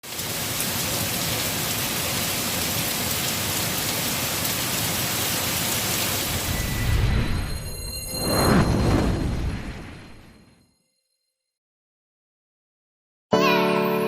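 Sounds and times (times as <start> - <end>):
steady rain hiss: 0.0 - 7.0.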